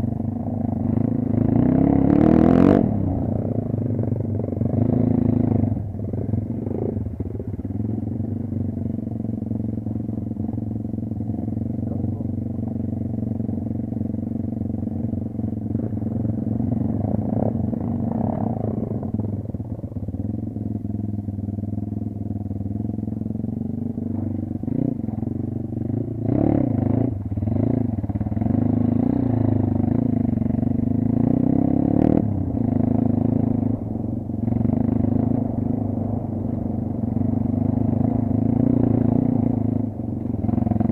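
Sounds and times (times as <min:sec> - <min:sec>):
dirt bike engine running: 0:00.0 - 0:40.9.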